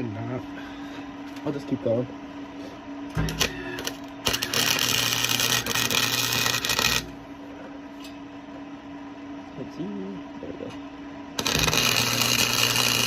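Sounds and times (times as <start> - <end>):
steady low hum: 0.0 - 13.0
welder arc crackling: 3.1 - 7.3, 11.4 - 13.0.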